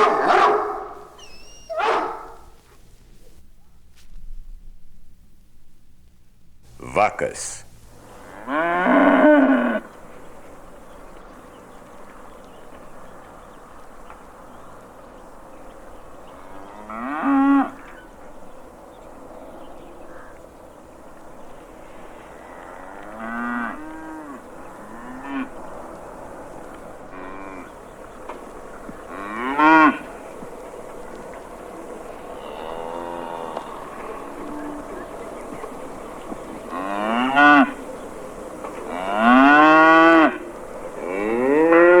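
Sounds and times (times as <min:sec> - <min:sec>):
cattle mooing: 0:00.0 - 0:02.5, 0:08.0 - 0:10.0, 0:16.4 - 0:18.0, 0:21.9 - 0:26.4, 0:27.1 - 0:27.8, 0:28.8 - 0:42.0
steady background hiss: 0:00.0 - 0:42.0.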